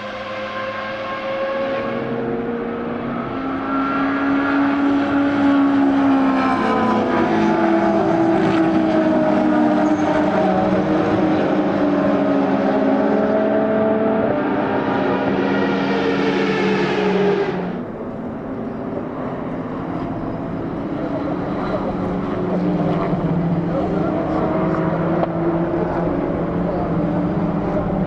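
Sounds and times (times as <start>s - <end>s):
racing car engines passing: 0.0s - 28.0s.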